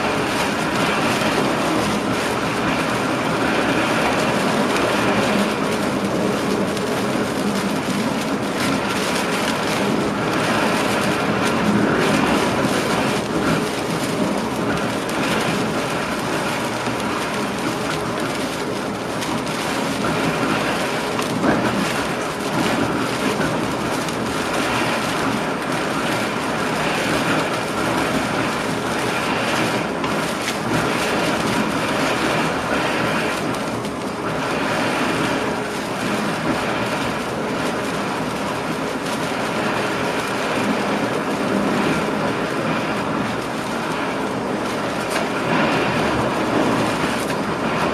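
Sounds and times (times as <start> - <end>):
train wheels rumbling on rails: 0.0 - 47.9.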